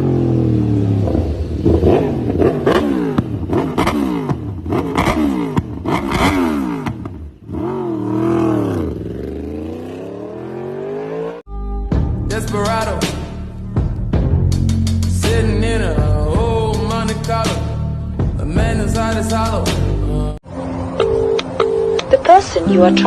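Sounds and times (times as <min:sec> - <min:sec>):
motorcycle engine revving: 0:00.0 - 0:11.5.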